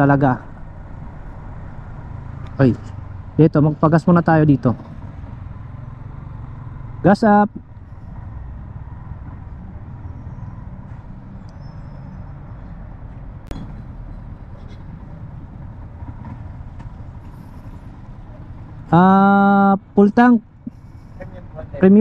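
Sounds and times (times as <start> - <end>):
motorcycle engine idling: 13.5 - 21.8.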